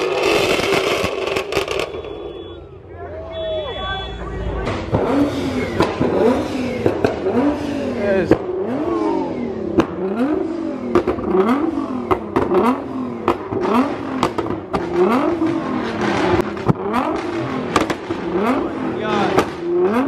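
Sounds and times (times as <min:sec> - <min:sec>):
exhaust pops and cracks: 0:00.0 - 0:02.0, 0:05.8 - 0:07.4, 0:10.9 - 0:18.5, 0:19.3 - 0:19.9
sports car engine revving: 0:00.0 - 0:02.0, 0:04.6 - 0:20.0.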